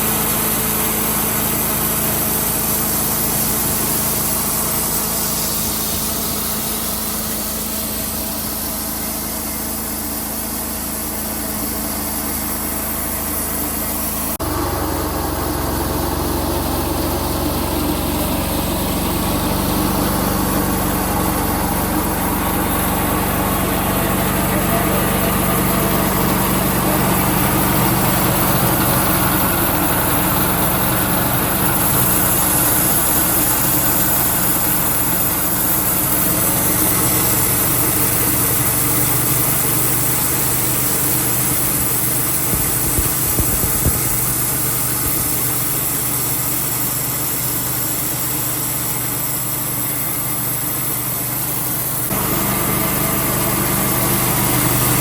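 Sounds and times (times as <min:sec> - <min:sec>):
saw cutting through log: 0:00.0 - 0:55.0
small engine running under load: 0:00.0 - 0:55.0.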